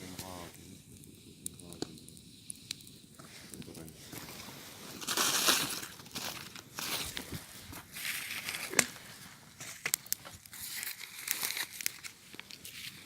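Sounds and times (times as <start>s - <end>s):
paper rustling and crinkling: 4.2s - 13.0s.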